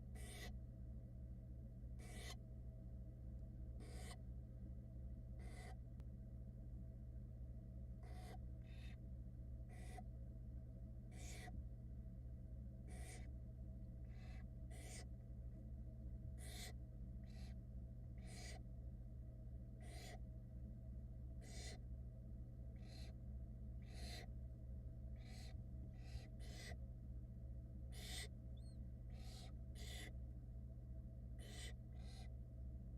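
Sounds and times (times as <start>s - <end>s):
steady low hum: 0.0s - 32.9s
owl nestlings hissing: 0.2s - 0.6s, 2.0s - 2.4s, 3.8s - 4.2s, 5.4s - 5.8s, 8.0s - 9.0s, 9.7s - 10.0s, 11.1s - 11.5s, 12.9s - 13.3s, 14.0s - 15.1s, 16.4s - 17.6s, 18.2s - 18.6s, 19.8s - 20.2s, 21.4s - 21.8s, 22.8s - 23.2s, 23.8s - 24.3s, 25.2s - 26.8s, 27.9s - 28.3s, 29.1s - 30.1s, 31.4s - 32.3s.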